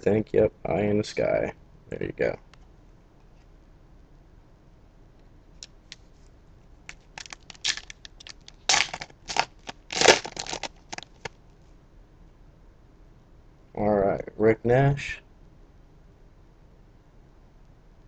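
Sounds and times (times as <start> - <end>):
wrapper tearing and crinkling: 6.9 - 11.3.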